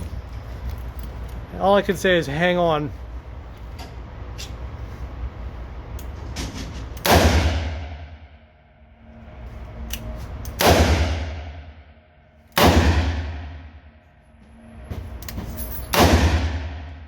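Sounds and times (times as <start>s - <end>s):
revolver gunshots echoing indoors: 7.0s - 8.7s, 10.6s - 14.0s, 15.9s - 17.0s.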